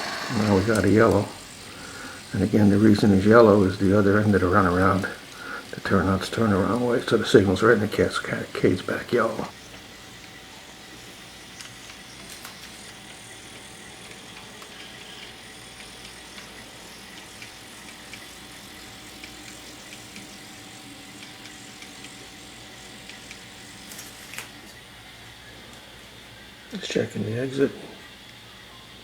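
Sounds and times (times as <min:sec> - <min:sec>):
model train motor whirring: 0:00.0 - 0:29.0
light clicks of train: 0:11.5 - 0:24.8.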